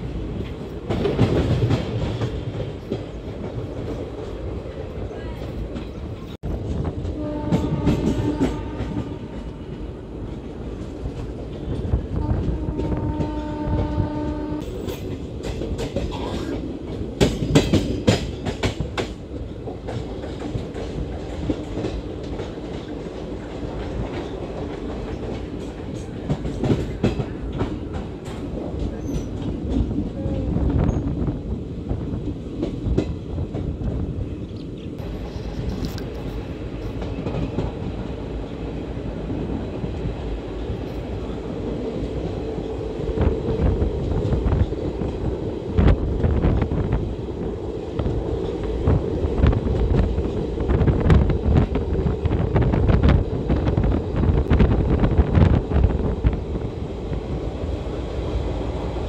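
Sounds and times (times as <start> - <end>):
clickety-clack over rail joints: 0.0 - 59.0
train wheels and wind rumbling: 0.0 - 59.0
train horn: 7.0 - 10.0, 12.1 - 14.9.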